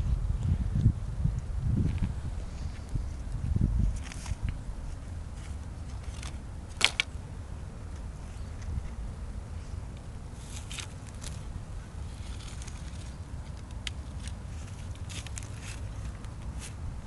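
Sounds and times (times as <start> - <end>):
steady low rumble: 0.0 - 17.0
dry twigs crackling and snapping: 5.4 - 7.1, 9.9 - 16.8.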